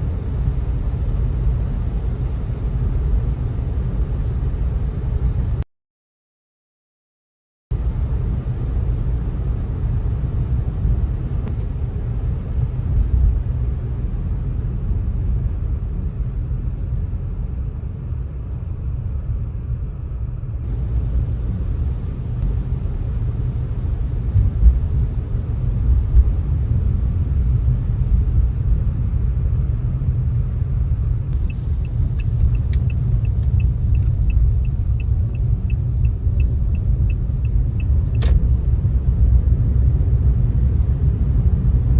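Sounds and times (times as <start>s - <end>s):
car driving on wet road: 20.7s - 41.9s
light regular ticking: 31.4s - 38.0s.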